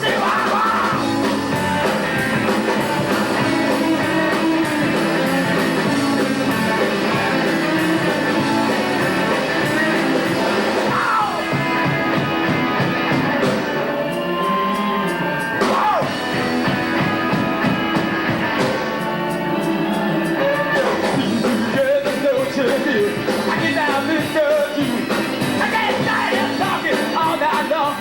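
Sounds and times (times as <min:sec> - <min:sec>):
person singing or calling out: 0:00.0 - 0:01.9, 0:08.6 - 0:11.8, 0:13.7 - 0:16.3, 0:25.6 - 0:28.0
rock band playing live: 0:00.0 - 0:28.0.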